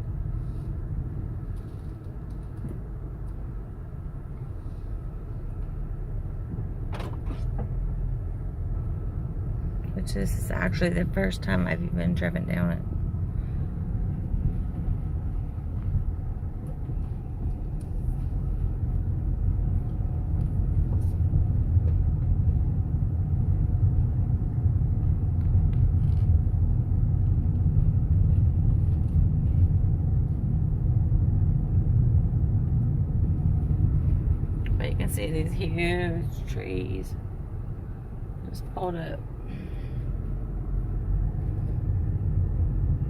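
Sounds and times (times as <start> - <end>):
car engine and road noise: 0.0 - 43.0.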